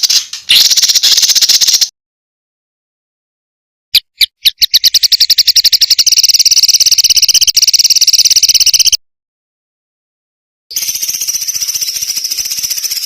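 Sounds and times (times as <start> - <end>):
songbird trilling: 4.0 - 9.0.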